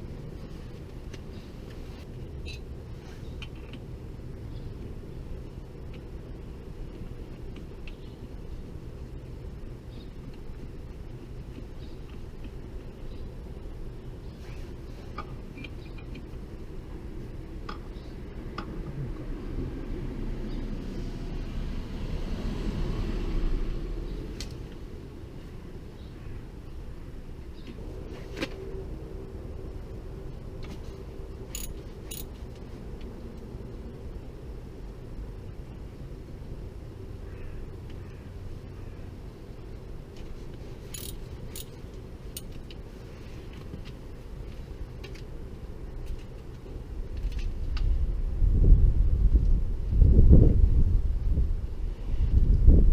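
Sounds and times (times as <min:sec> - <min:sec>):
low background hum: 0:00.0 - 0:22.0
light metallic clinks: 0:31.5 - 0:32.4, 0:40.9 - 0:42.6.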